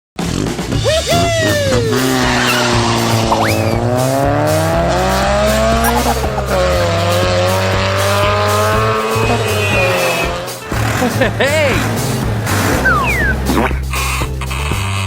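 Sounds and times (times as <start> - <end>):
background music: 0.2 - 15.0
car engine revving: 0.2 - 15.0
quick upward squeal: 0.8 - 4.3, 5.6 - 7.2, 12.5 - 13.6.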